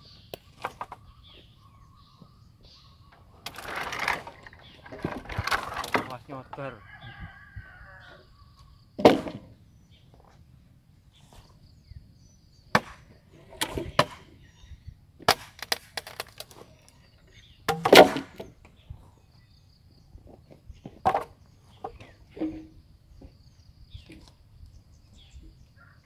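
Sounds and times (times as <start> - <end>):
wood being chopped: 9.0 - 9.5, 12.7 - 14.3, 15.2 - 16.6, 17.7 - 18.6.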